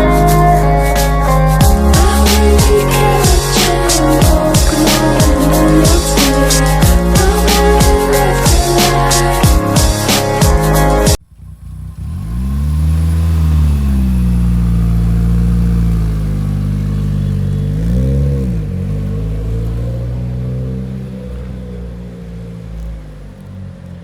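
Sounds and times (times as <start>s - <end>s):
music: 0.0s - 11.2s
car engine revving: 0.0s - 24.0s.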